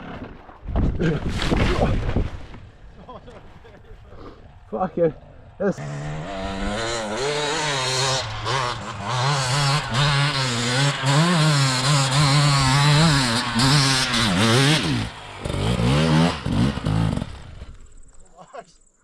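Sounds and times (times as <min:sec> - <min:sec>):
dirt bike engine revving: 0:04.5 - 0:18.1.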